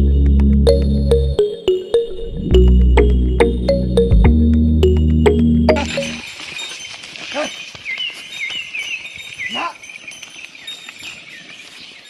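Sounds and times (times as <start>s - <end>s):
bird chirping: 5.7s - 12.0s.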